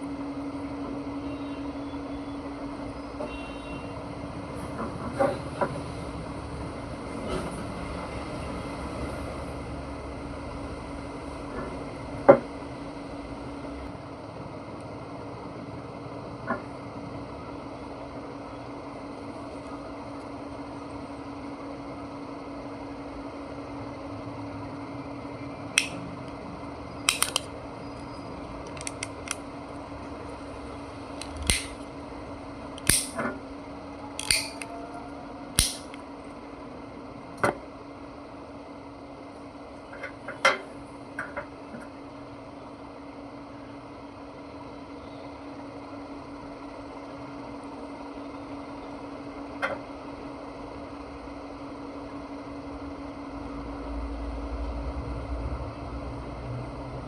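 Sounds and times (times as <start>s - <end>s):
steady low hum: 0.0s - 57.0s
small parts clicking and snapping: 25.8s - 26.4s, 27.1s - 27.5s, 28.6s - 29.4s, 31.2s - 31.8s, 32.7s - 33.2s, 34.2s - 34.7s, 35.6s - 36.0s.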